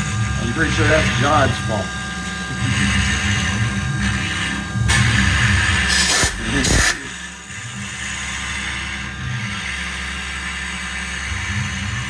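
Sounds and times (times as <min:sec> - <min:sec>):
end mill cutting wood: 0:00.0 - 0:07.4
mill spindle whirring: 0:00.0 - 0:12.0.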